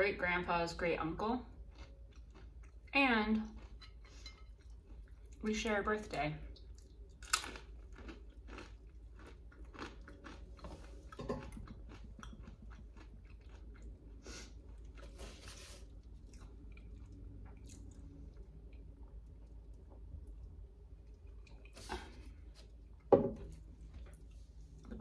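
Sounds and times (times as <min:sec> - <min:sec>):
crunchy snack chewing: 0:01.7 - 0:02.9, 0:06.8 - 0:18.8.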